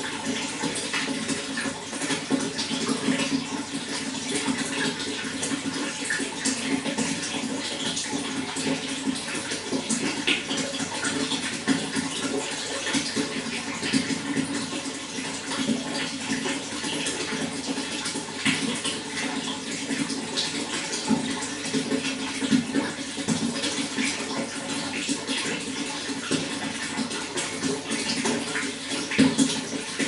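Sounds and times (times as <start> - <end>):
water running and splashing: 0.0 - 30.0.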